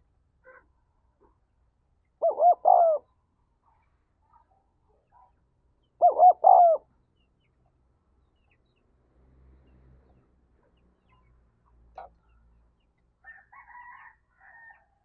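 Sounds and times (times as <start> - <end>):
dove cooing: 2.2 - 3.1, 6.0 - 6.9.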